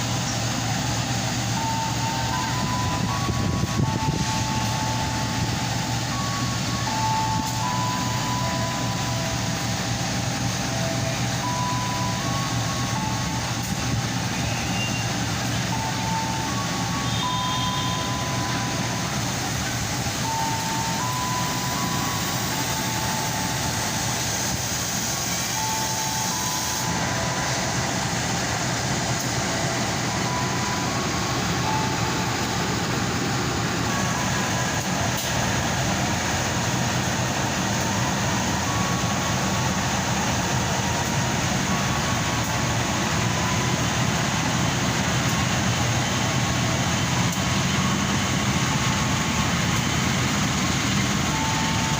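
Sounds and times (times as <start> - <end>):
train rumbling: 0.0 - 51.9
short high tones: 10.8 - 19.4.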